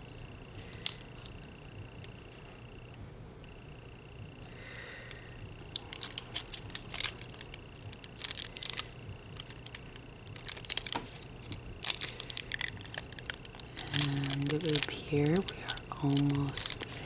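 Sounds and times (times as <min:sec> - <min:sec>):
foil crinkling and scratching: 0:05.7 - 0:17.0.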